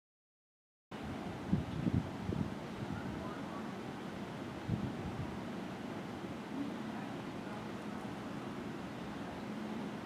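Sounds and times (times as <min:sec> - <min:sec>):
wind buffeting microphone: 0:01.0 - 0:10.0.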